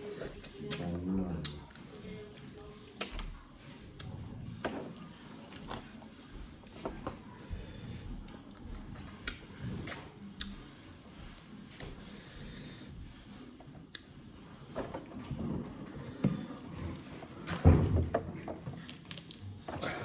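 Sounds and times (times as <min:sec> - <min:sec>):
low rubbing and rustling: 0:00.0 - 0:20.0
chewing and gnawing food: 0:00.2 - 0:11.5, 0:18.7 - 0:20.0.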